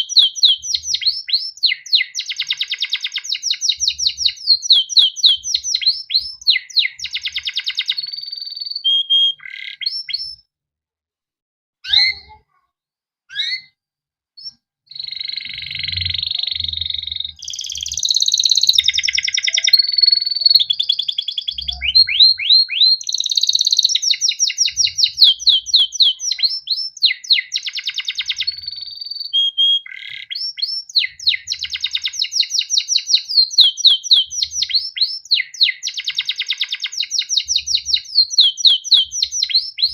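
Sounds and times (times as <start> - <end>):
canary chirping: 0.0 - 10.5, 11.8 - 12.6, 13.3 - 13.8, 14.4 - 39.9
canary rolling trill: 14.9 - 39.9.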